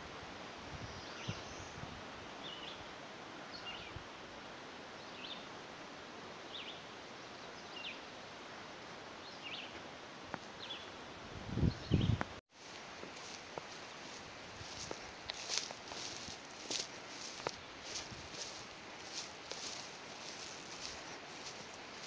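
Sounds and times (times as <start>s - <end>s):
steady outdoor hiss: 0.0s - 22.0s.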